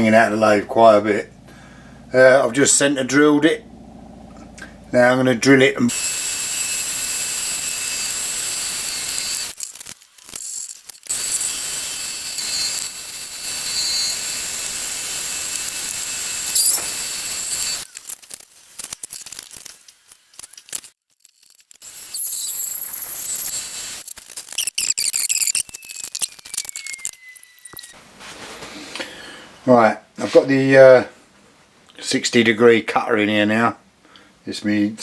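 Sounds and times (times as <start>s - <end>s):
lathe drilling metal whirring: 5.9s - 9.6s, 11.1s - 17.8s.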